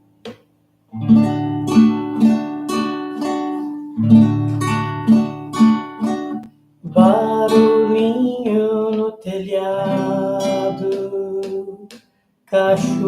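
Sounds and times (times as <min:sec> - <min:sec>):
acoustic guitar strumming: 0:00.2 - 0:11.9, 0:12.6 - 0:13.0.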